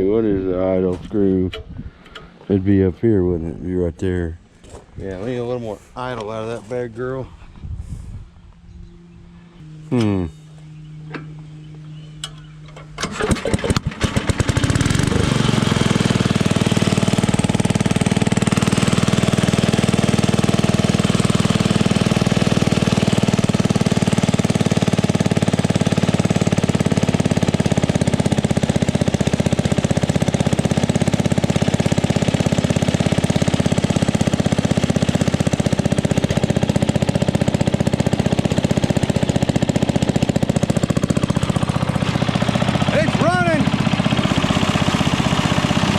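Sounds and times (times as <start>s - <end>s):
generator engine cranking and running: 9.6s - 45.9s.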